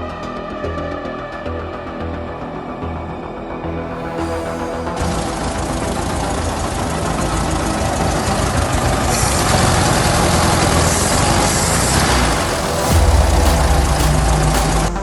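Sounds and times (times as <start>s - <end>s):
car engine running: 4.9s - 15.0s.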